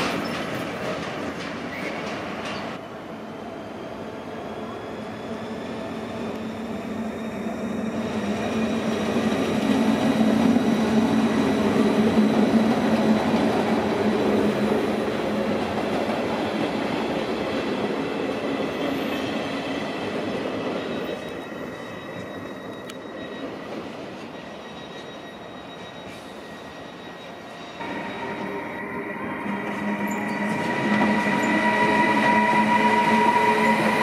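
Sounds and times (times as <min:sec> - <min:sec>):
electric train passing: 0:00.0 - 0:34.0
thin high whine: 0:24.8 - 0:34.0.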